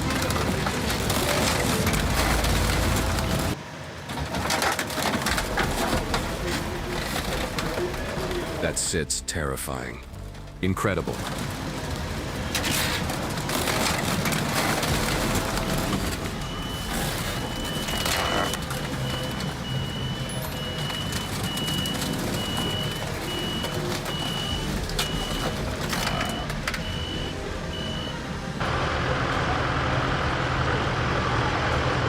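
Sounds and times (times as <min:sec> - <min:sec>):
diesel engine rumble: 0:00.0 - 0:32.0
reversing alarm beeping: 0:12.4 - 0:28.3.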